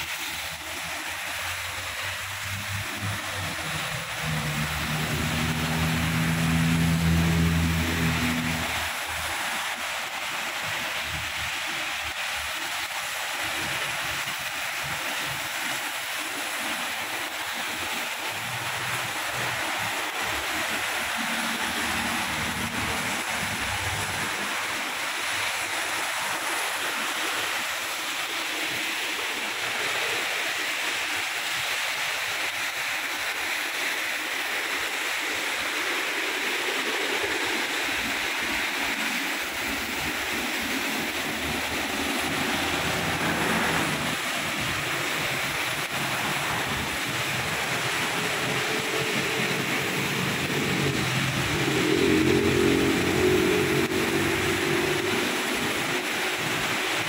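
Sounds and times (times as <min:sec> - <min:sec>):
road traffic: 0:00.0 - 0:12.5, 0:16.3 - 0:27.6, 0:36.9 - 0:57.0
heavy rain: 0:00.0 - 0:57.0
vehicle engine: 0:01.4 - 0:09.4, 0:21.1 - 0:24.4, 0:41.3 - 0:44.6, 0:47.9 - 0:56.0.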